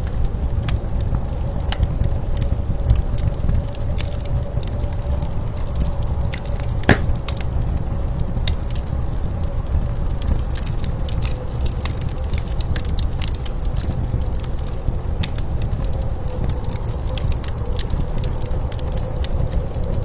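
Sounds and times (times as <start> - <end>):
wood fire crackling: 6.9 - 7.3.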